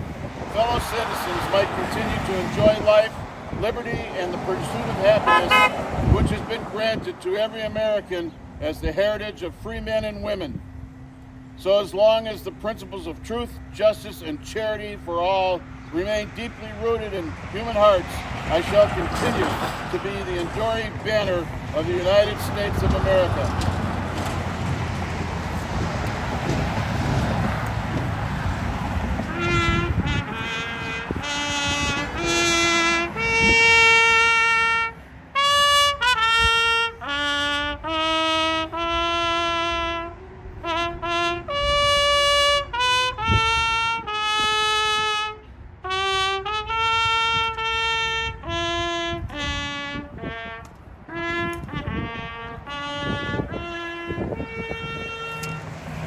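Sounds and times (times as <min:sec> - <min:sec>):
solo trumpet melody: 0:04.5 - 0:06.8, 0:24.5 - 0:56.0
trumpeter breathing: 0:28.2 - 0:47.1.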